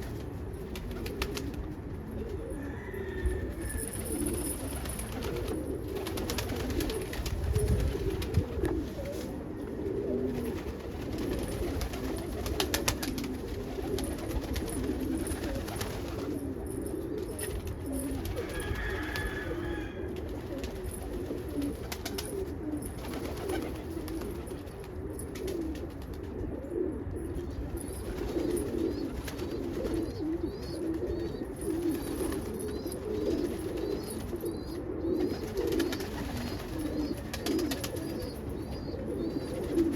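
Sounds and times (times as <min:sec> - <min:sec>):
birds warbling calls: 0:28.4 - 0:39.9.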